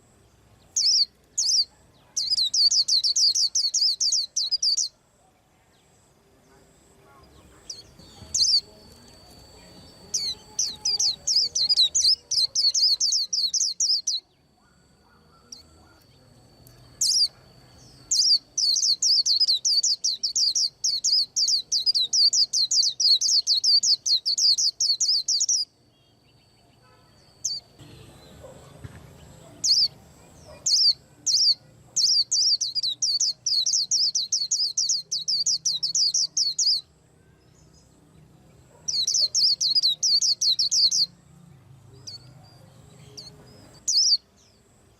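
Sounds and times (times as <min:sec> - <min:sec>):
bird chirping rapidly: 0:00.7 - 0:04.9, 0:07.5 - 0:16.1, 0:17.0 - 0:25.7, 0:27.4 - 0:28.7, 0:29.5 - 0:37.0, 0:38.8 - 0:41.2, 0:43.1 - 0:44.3.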